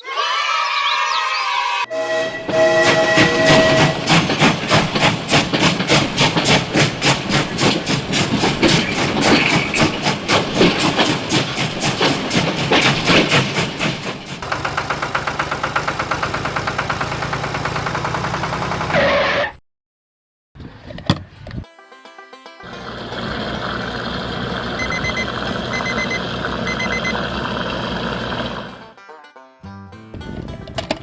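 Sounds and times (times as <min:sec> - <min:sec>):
engine chugging: 0:14.4 - 0:19.1, 0:22.6 - 0:29.0
smooth rippling engine: 0:22.7 - 0:28.9.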